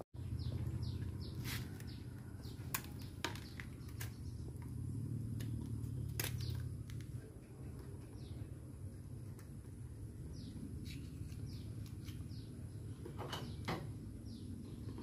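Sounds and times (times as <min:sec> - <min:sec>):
bird chirping: 0:00.2 - 0:06.8, 0:07.5 - 0:08.7, 0:10.2 - 0:15.0
oyster shell clicking and cracking: 0:05.4 - 0:07.1.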